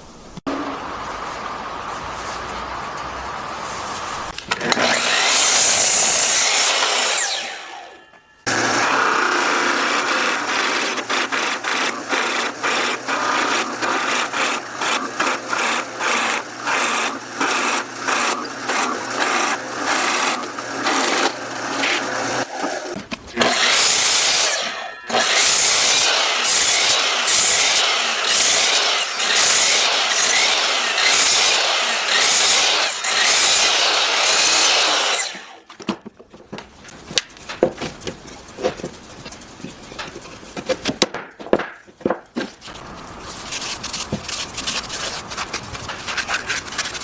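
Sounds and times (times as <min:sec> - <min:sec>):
power tool running: 0:00.5 - 0:35.6
hand strokes rubbing wood: 0:42.5 - 0:47.0.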